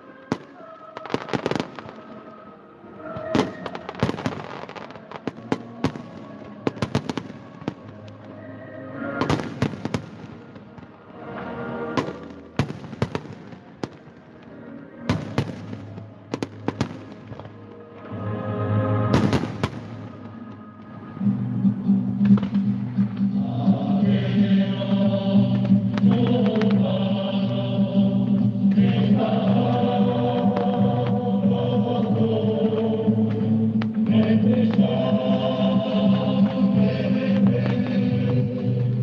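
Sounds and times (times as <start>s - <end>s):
music playing: 0.0s - 39.0s
fireworks bangs and crackles: 0.2s - 2.4s, 3.2s - 8.4s, 9.1s - 11.1s, 11.9s - 18.1s, 19.1s - 21.0s, 25.4s - 31.9s.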